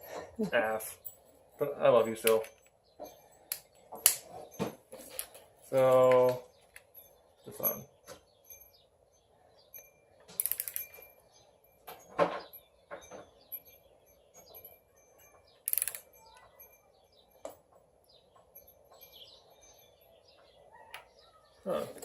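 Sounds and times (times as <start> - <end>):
metal clinks: 0.0 - 22.0
wrench ratcheting: 10.4 - 11.0, 15.6 - 16.2.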